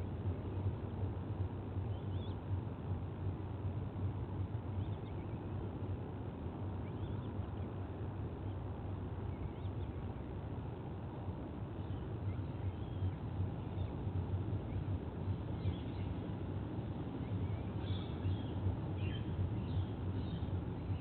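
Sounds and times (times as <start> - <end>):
faint bird chirps: 6.8 - 7.8, 17.2 - 21.0.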